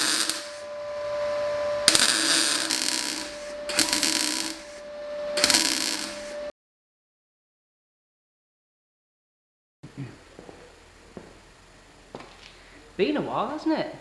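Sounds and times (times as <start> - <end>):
harsh abrasive grinding: 0.0 - 6.5
power tool whining: 0.0 - 6.5.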